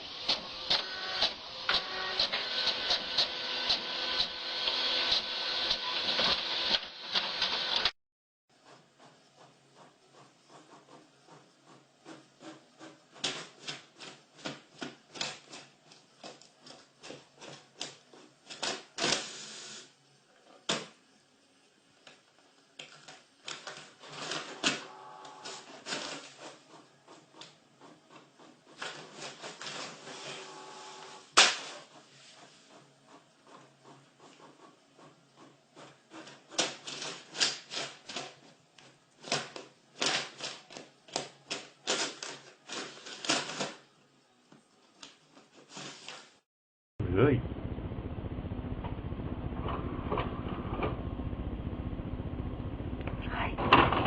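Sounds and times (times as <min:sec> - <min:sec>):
printer motor whir: 0:00.0 - 0:07.9, 0:24.3 - 0:32.0.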